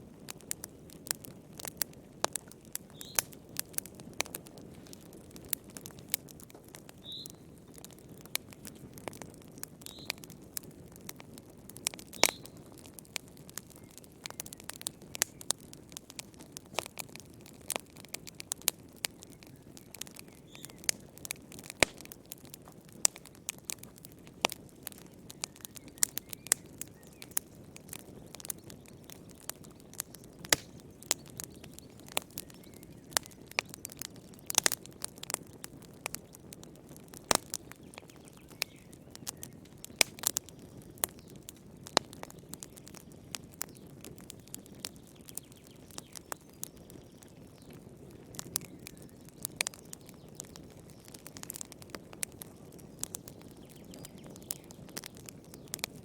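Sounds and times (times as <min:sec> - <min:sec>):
low rush of flames: 0:00.0 - 0:45.3
fire pops and snaps: 0:00.0 - 0:56.0.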